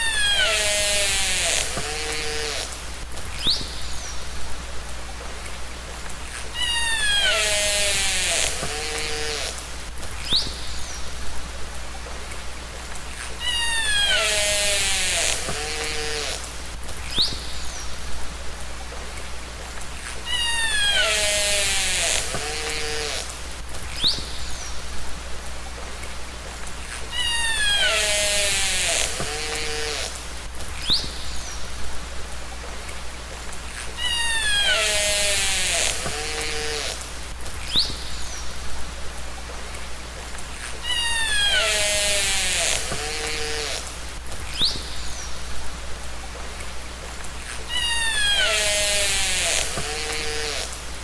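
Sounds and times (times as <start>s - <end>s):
hissing water noise: 0.0s - 51.0s
killer whale calls underwater: 6.5s - 8.5s, 20.2s - 21.5s, 34.0s - 35.2s.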